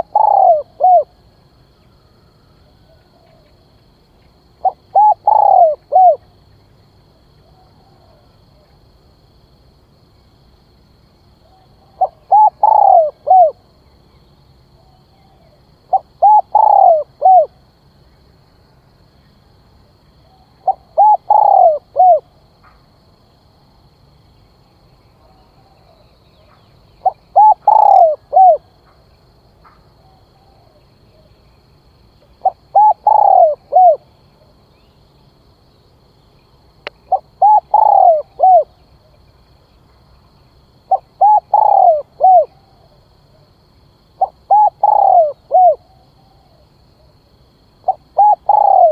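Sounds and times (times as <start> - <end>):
dove cooing: 0.0 - 1.2, 4.6 - 6.3, 11.4 - 13.6, 14.8 - 17.6, 20.2 - 22.3, 27.0 - 28.7, 32.3 - 34.1, 37.1 - 39.2, 40.9 - 43.5, 44.2 - 46.6, 47.8 - 48.9.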